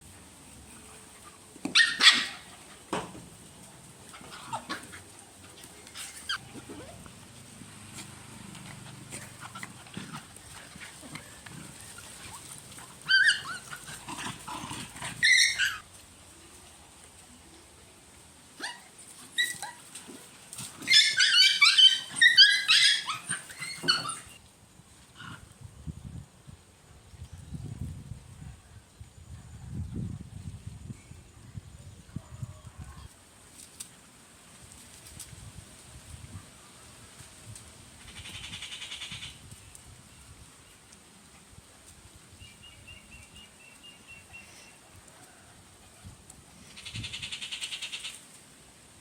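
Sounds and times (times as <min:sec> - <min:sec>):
puppies yelping: 0:01.7 - 0:02.5, 0:06.0 - 0:15.8, 0:20.8 - 0:24.4
puppies whining: 0:11.9 - 0:13.9, 0:15.2 - 0:15.8, 0:20.8 - 0:24.4.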